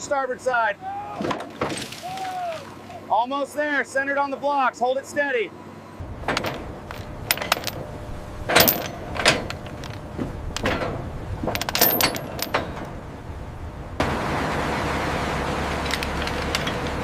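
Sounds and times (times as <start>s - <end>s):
metal hardware clanking: 6.0s - 13.6s, 15.8s - 17.0s.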